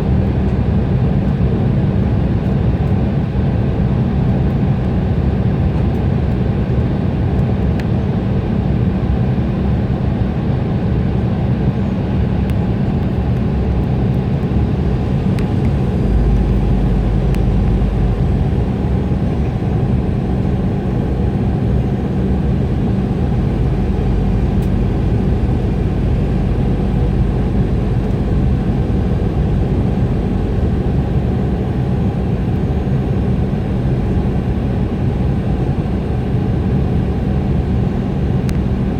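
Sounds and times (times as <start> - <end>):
jet engine drone: 0.0 - 38.9
deep rumble: 11.1 - 38.9
air rushing along fuselage: 12.7 - 34.3.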